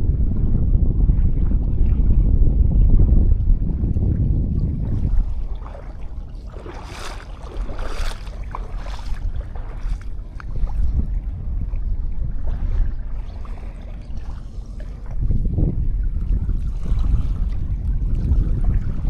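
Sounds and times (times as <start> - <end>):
wind buffeting microphone: 0.0 - 19.0
small waves washing onto beach: 4.5 - 19.0.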